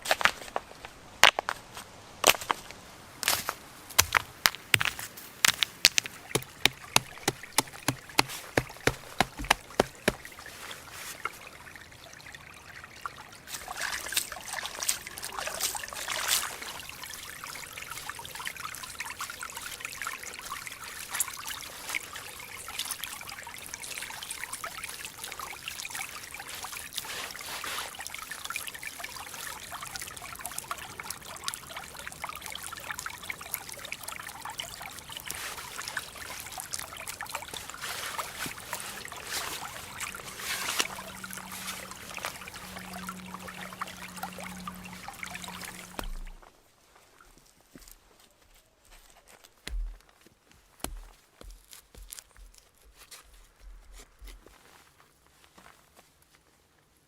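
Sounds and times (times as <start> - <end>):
water trickling and splashing: 2.6 - 55.8
sharp evenly spaced knocks: 4.0 - 10.3.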